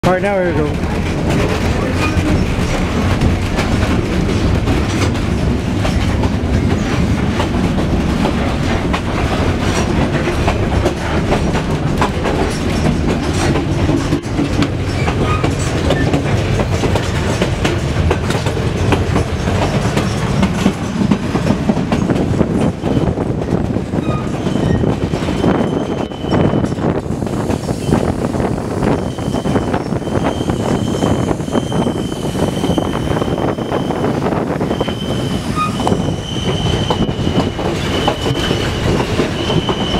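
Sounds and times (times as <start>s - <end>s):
train coach rumble: 0.0s - 39.9s
wheels clicking over rail joints: 0.2s - 27.8s.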